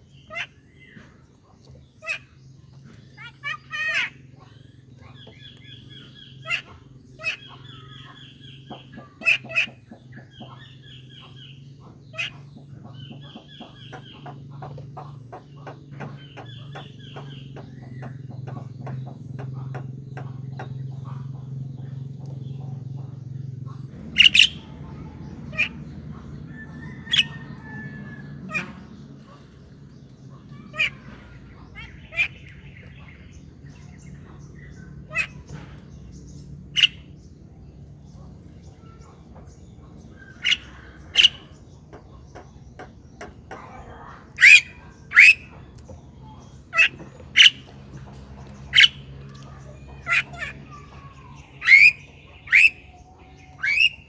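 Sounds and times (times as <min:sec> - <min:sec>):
bird squawking: 0:00.0 - 0:01.0, 0:02.0 - 0:02.4, 0:03.2 - 0:15.2, 0:23.7 - 0:29.5, 0:30.3 - 0:35.6, 0:36.7 - 0:37.1, 0:40.2 - 0:41.6, 0:43.5 - 0:45.6, 0:46.2 - 0:47.7, 0:48.6 - 0:54.0
low steady hum: 0:00.0 - 0:54.0.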